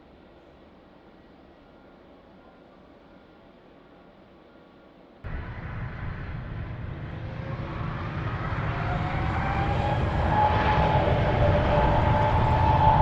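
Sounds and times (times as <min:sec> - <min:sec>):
jet airliner engines: 0:05.2 - 0:13.0.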